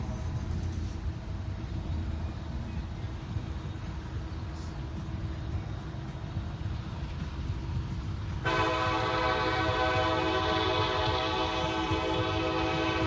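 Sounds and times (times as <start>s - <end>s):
locomotive air horn chord: 8.4s - 13.0s.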